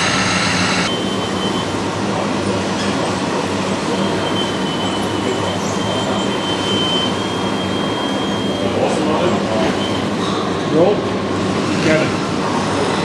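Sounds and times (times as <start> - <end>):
small motors and gearing: 0.0 - 0.9
thin high whine: 0.0 - 1.6.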